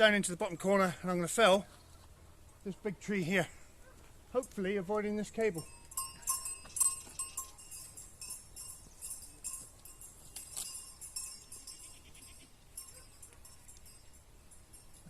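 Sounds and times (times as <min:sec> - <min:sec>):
goat bells jingling: 0:03.0 - 0:15.0.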